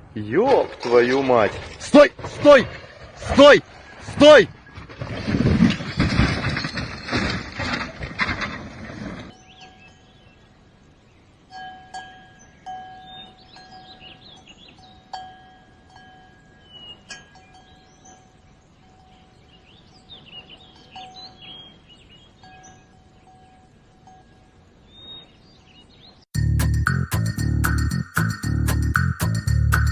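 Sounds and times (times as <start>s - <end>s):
steady ringing chime tone: 26.4s - 29.9s.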